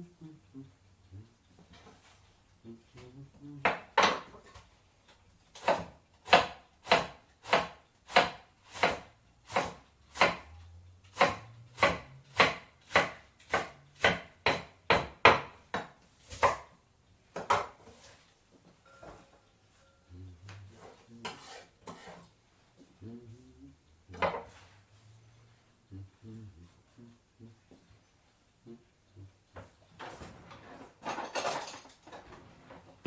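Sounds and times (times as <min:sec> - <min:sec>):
knife chopping on cutting board: 0:05.6 - 0:10.5, 0:11.1 - 0:16.7.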